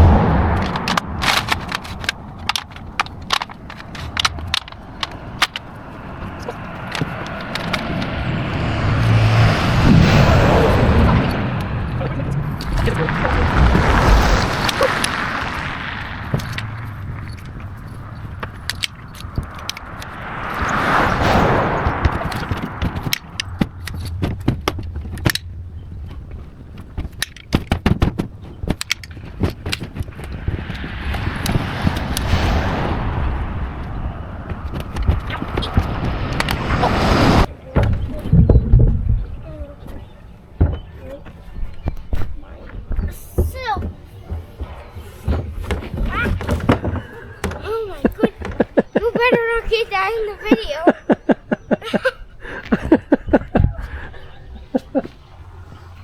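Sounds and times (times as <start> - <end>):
twigs snapping and crackling: 0.0 - 9.6, 11.2 - 21.0
low steady rumble: 0.0 - 37.5
passing car rushing: 0.0 - 39.5, 52.3 - 56.0
twigs snapping and cracking: 0.5 - 8.9.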